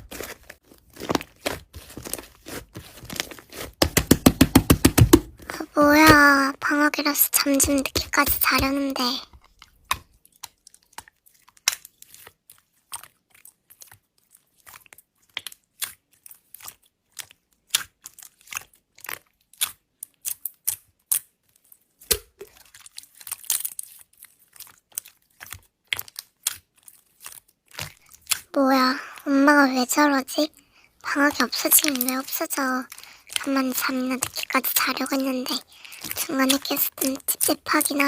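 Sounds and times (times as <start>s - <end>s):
slime crackling and popping: 0.0s - 5.2s, 22.1s - 28.5s.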